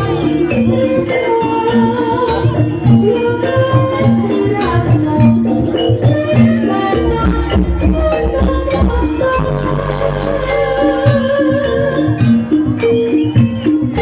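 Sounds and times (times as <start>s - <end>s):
drums and percussion rhythm: 0.0s - 14.0s
repeated pitched notes: 8.2s - 11.6s
gliding melody line: 8.2s - 14.0s.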